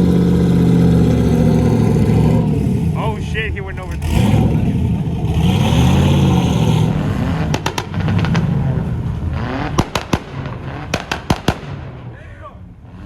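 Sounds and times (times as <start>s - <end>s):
car engine revving hard: 0.0s - 3.2s, 3.8s - 11.7s
sharp exhaust cracks: 6.8s - 12.5s.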